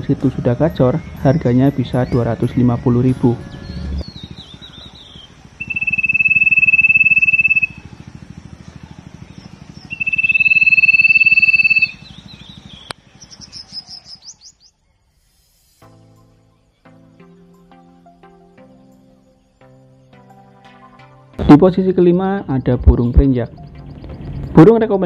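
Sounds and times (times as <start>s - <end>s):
bird rising chirps: 0.4s - 25.0s
bird whistled notes: 0.9s - 7.9s, 9.8s - 15.8s.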